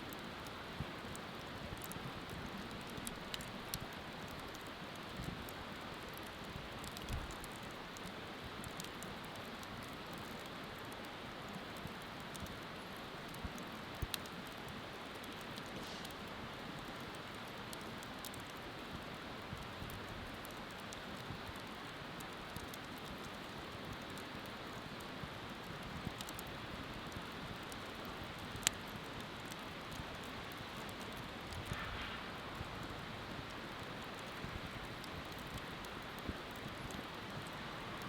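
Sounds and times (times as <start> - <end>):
bonfire crackling and popping: 0.0 - 38.0.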